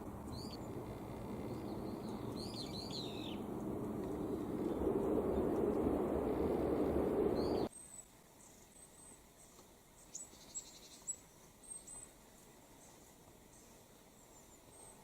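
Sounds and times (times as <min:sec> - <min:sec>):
small songbirds calling: 0:00.0 - 0:05.5, 0:07.3 - 0:08.0, 0:10.0 - 0:12.2
loud rushing noise: 0:01.0 - 0:07.7.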